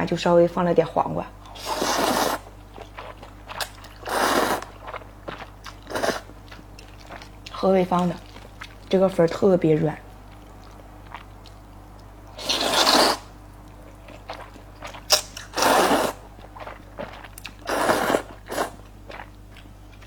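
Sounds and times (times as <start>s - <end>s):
wet chewing clicks: 1.4s - 20.0s
noisy mouth sounds eating noodles: 1.5s - 6.4s, 12.3s - 13.4s, 15.1s - 19.3s.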